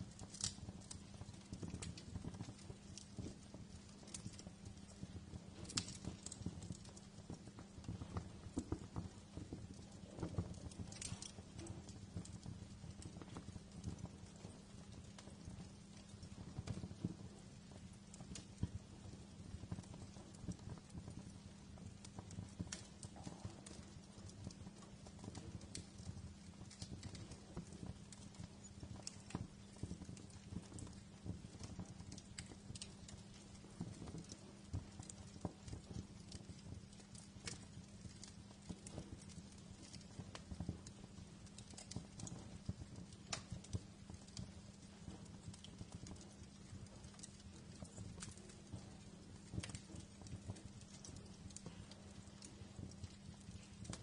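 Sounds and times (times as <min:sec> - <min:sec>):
low steady rumble: 0:00.0 - 0:41.9
faint steady hum: 0:00.0 - 0:54.0
fireplace fire crackling: 0:00.0 - 0:54.0.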